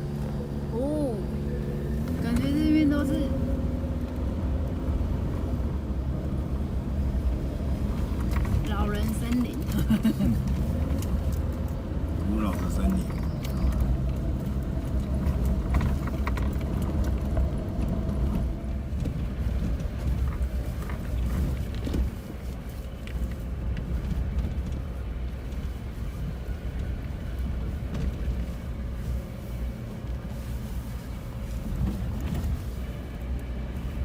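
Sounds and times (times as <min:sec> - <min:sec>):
engine and tyre rumble: 0:00.0 - 0:34.0
small knocks and rattles: 0:14.8 - 0:25.7.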